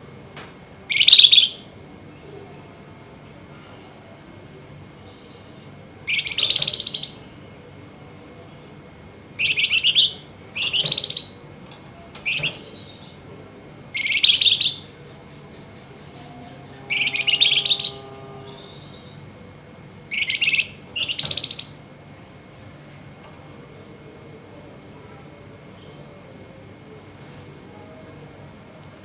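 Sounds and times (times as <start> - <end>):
songbird harsh chattering: 0.9 - 1.6, 6.1 - 7.2, 9.4 - 11.4, 14.0 - 14.9, 16.9 - 18.0, 20.1 - 21.8.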